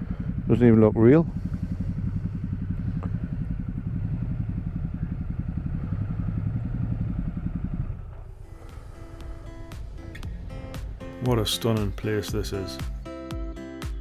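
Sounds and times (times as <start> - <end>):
motorcycle engine running: 0.0 - 13.1.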